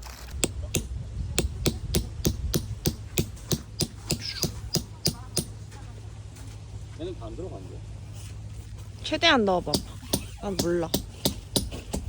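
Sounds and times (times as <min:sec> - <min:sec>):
sharp knocks: 0:00.4 - 0:05.5.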